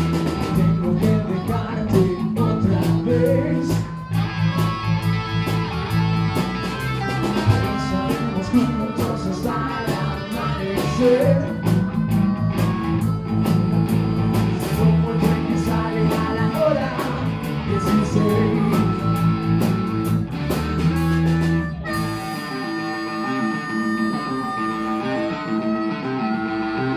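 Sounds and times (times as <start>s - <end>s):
drum kit beat: 0.0s - 22.4s
bass guitar: 0.0s - 26.9s
electric guitar: 0.0s - 26.9s.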